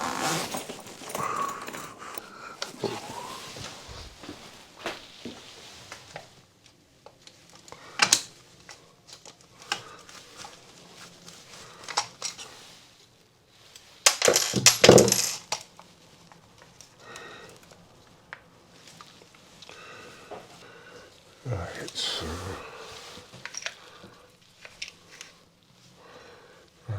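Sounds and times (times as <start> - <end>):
small metal objects clinking: 0.3 - 2.9, 14.1 - 15.6.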